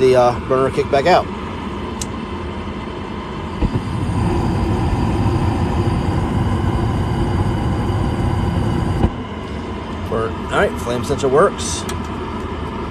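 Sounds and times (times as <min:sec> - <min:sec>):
furnace fan running: 0:00.0 - 0:12.9
rush of burner flame: 0:03.5 - 0:10.1
burner ignition click and thump: 0:03.6 - 0:04.4, 0:08.7 - 0:09.2.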